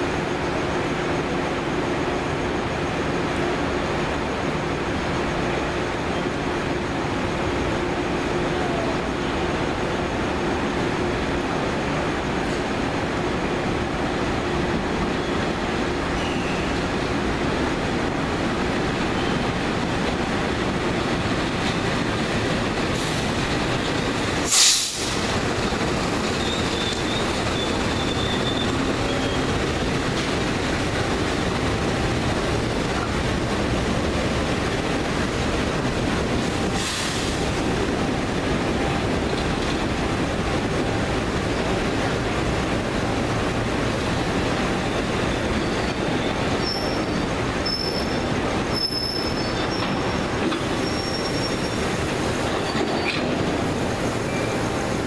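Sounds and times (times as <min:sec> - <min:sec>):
freight train rumbling past: 0:00.0 - 0:55.0
loud burst of locomotive noise: 0:00.0 - 0:55.0
wheel squeal: 0:16.2 - 0:16.9, 0:26.3 - 0:29.5, 0:45.2 - 0:51.9, 0:52.5 - 0:53.4.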